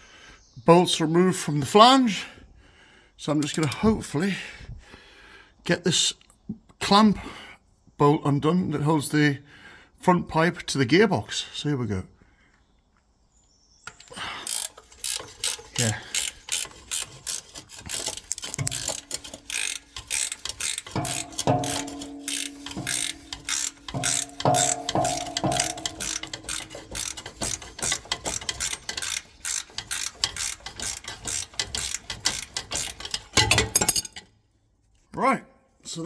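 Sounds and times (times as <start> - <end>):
ratchet spanner clicking: 3.4 - 3.8, 13.9 - 34.2
ringing metallic knocks: 18.6 - 29.1.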